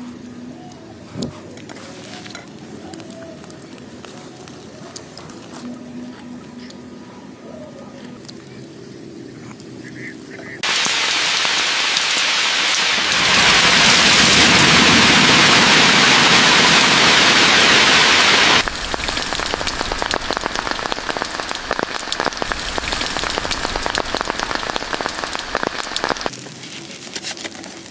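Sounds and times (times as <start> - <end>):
rain drops pattering: 2.3 - 5.5, 10.6 - 27.9
heavy rain hissing: 10.6 - 26.5.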